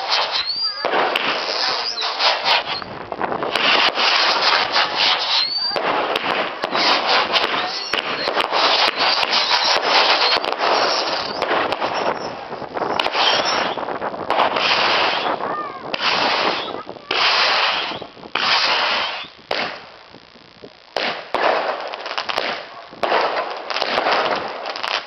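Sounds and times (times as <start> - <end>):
firework whistles: 0.0 - 19.9
fireworks crackling: 0.0 - 25.0.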